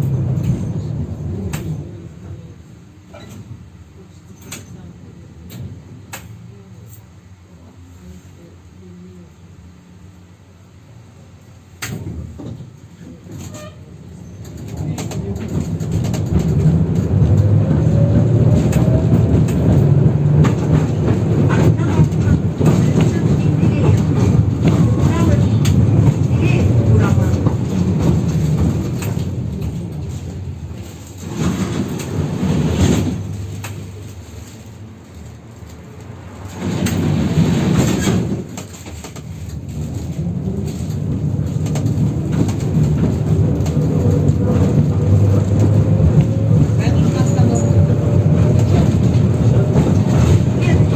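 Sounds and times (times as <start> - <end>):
wheels rumbling on rails: 0.0 - 7.4, 11.4 - 50.9
tram motor whine: 13.4 - 34.8.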